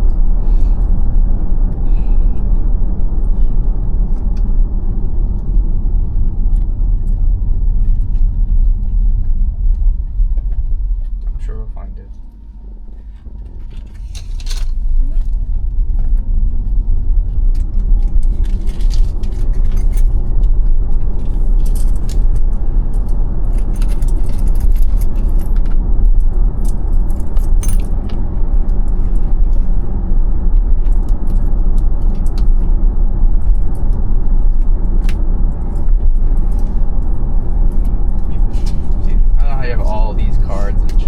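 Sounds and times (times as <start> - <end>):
road and tyre noise in car cabin: 0.0 - 41.0
light clicks and rattles: 17.5 - 29.7.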